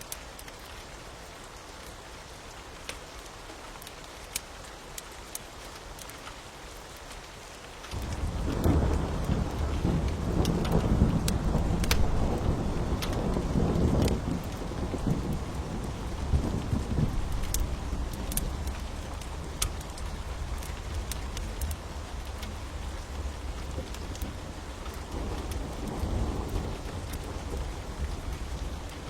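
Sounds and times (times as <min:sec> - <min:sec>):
steady rain: 0:00.0 - 0:29.0
wood fire crackling and popping: 0:02.8 - 0:29.0
thunder rumbling: 0:07.9 - 0:29.0.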